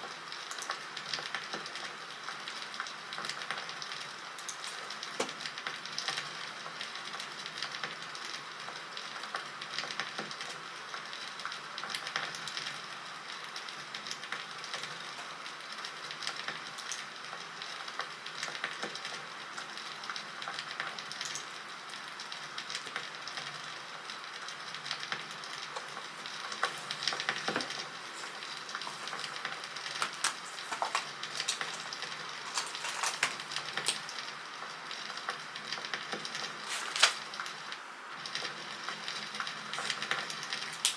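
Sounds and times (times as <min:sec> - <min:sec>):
wood fire hissing: 0:00.0 - 0:40.9
fire pops and snaps: 0:03.2 - 0:06.4, 0:24.3 - 0:34.4, 0:35.2 - 0:38.5, 0:39.1 - 0:40.9.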